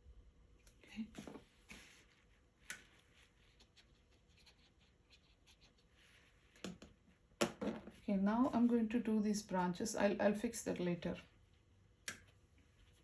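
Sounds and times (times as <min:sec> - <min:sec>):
paintbrush strokes on paper: 0:01.4 - 0:06.6.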